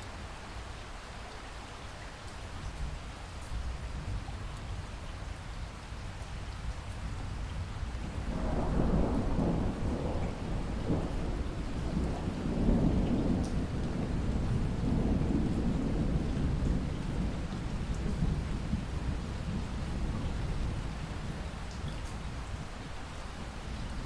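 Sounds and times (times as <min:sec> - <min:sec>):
steady rain: 0:00.0 - 0:24.0
rolling thunder: 0:08.0 - 0:21.6.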